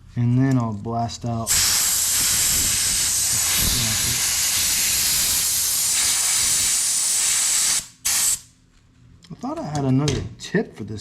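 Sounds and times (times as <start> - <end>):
compressed air blow gun hissing: 1.5 - 8.5.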